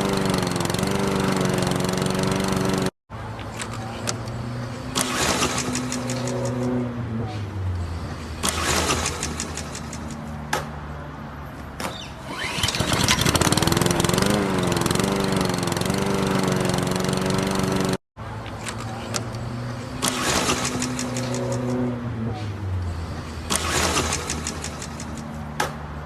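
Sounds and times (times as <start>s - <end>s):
lawn mower engine running: 0.0s - 2.9s, 12.2s - 18.0s, 18.6s - 21.9s, 23.0s - 25.4s
starter cord pulls: 12.3s - 16.0s.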